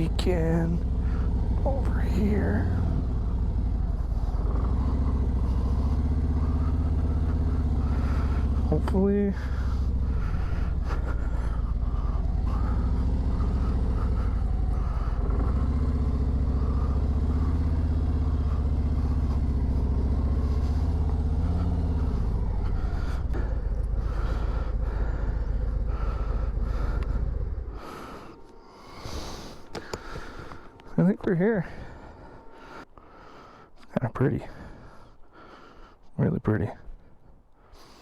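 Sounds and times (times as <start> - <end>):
motorcycle engine running: 0.0 - 28.6.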